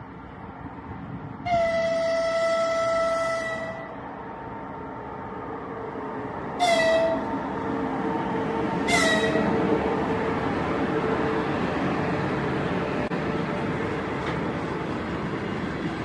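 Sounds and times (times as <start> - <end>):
train rumbling on rails: 0.0 - 16.0
train horn blasts: 1.5 - 4.0, 6.6 - 7.4, 8.8 - 9.6.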